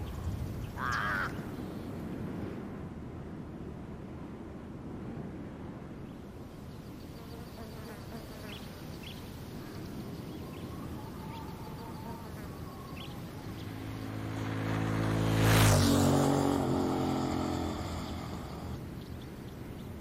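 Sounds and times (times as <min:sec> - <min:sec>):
faint duck quacking: 0:00.8 - 0:01.6
short chirping calls: 0:06.8 - 0:14.2
motorcycle engine approaching: 0:10.2 - 0:19.4.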